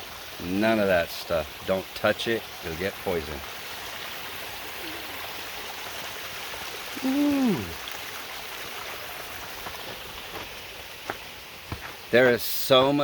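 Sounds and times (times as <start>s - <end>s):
creek rushing over cascades: 0.0s - 13.0s
man saying ooh: 7.0s - 7.8s.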